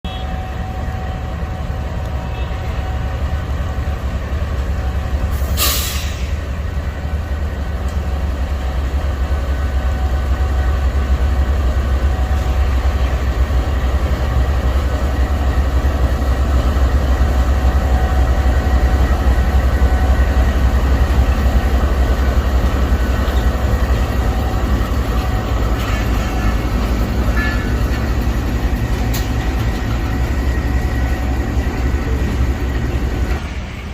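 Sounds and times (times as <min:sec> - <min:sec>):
train rumbling on rails: 0:00.0 - 0:33.9
brief sharp hiss: 0:05.4 - 0:06.4.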